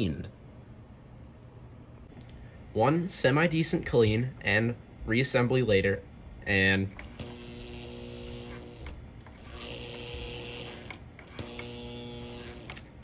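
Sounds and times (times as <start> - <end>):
toy locomotive motor humming: 7.0 - 12.9.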